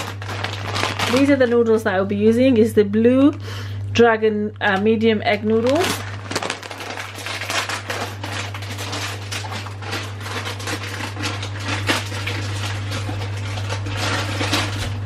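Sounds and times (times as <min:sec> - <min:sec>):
kitchen items rustling and clattering: 0:00.0 - 0:01.8, 0:04.8 - 0:15.0.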